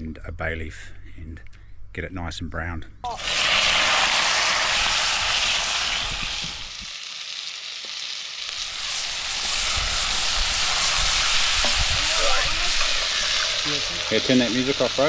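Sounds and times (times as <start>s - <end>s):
meat sizzling in a pot: 3.1s - 15.0s.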